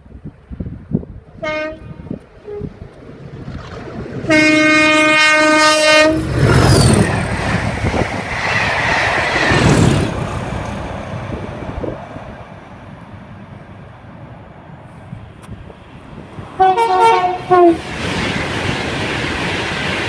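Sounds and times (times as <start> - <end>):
diesel locomotives passing: 0.0 - 20.0
train horn: 1.4 - 2.7, 4.3 - 6.3, 16.6 - 17.9.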